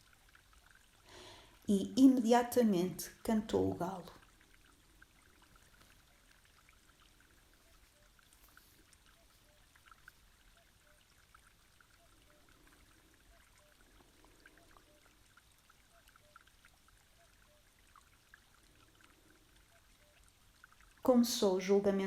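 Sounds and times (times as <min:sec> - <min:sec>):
faint background hiss: 0:00.0 - 0:22.0
small ticks: 0:04.2 - 0:21.0.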